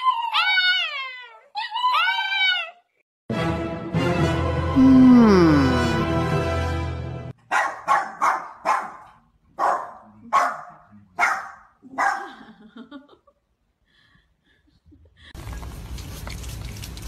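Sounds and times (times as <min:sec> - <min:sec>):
music: 0:03.3 - 0:07.4
small dog barking: 0:07.5 - 0:12.3.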